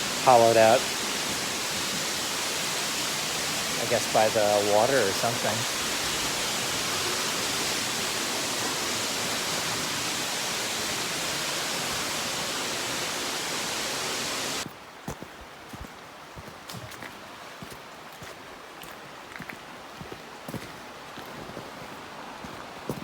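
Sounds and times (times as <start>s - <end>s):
waterfall rushing: 0.0s - 14.7s.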